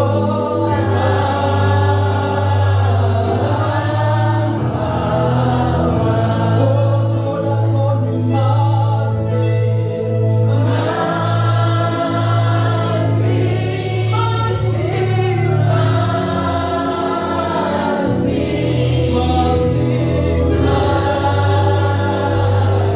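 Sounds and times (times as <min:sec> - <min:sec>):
congregation and choir singing: 0:00.0 - 0:22.9
instrumental accompaniment: 0:00.0 - 0:22.9.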